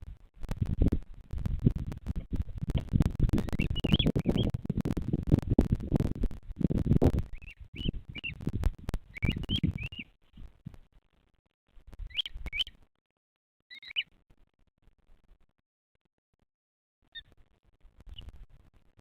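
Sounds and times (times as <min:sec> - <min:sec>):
wind buffeting microphone: 0:00.0 - 0:10.6
bird chirping: 0:03.3 - 0:04.6, 0:07.3 - 0:10.1, 0:12.0 - 0:12.8, 0:13.7 - 0:14.1.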